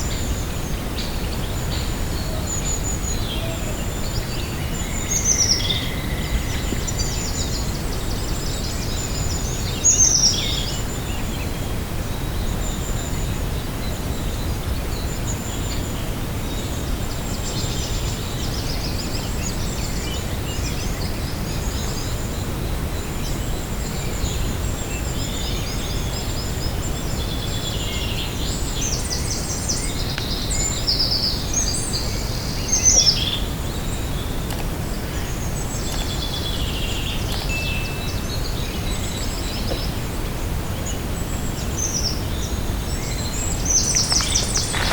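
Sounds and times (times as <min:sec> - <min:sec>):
birds chirping and trilling: 0:26.8 - 0:44.9
loud falling bird calls: 0:43.6 - 0:44.9.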